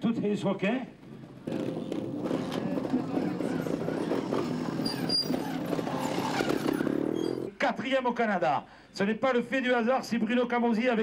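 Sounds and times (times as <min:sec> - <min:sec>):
crowd voices: 0:01.0 - 0:07.5
motorcycle two-stroke engine running: 0:01.0 - 0:07.5.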